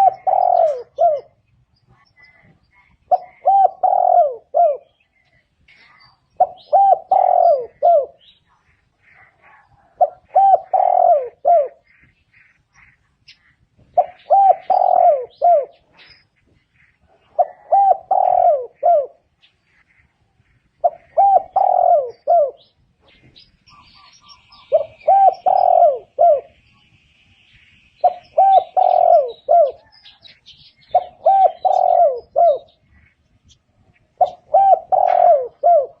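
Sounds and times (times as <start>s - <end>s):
dove cooing: 0.0s - 5.1s, 6.3s - 12.1s, 13.8s - 26.6s, 28.0s - 33.2s, 33.8s - 36.0s
faint small bird chirps: 18.8s - 25.7s.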